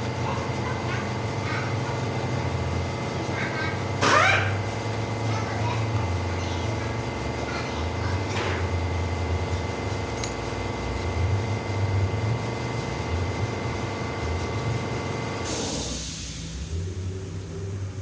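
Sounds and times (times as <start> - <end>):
hiss of released air: 15.4 - 17.6.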